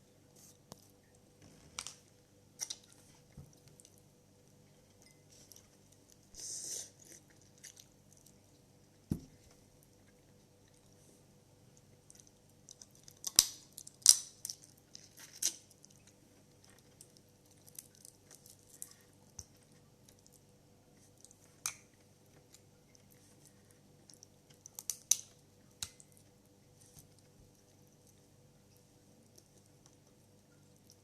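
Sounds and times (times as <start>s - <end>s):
soft chewing and squelching: 0.0s - 31.0s
crab shell cracking: 12.6s - 16.0s, 24.2s - 26.2s.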